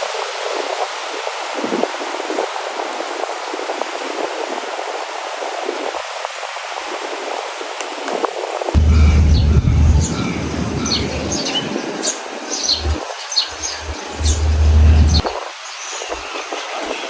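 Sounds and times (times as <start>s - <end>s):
low rumble: 8.8s - 11.8s, 12.6s - 15.2s
steady rushing background: 8.8s - 15.5s
birds chirping: 8.8s - 16.6s.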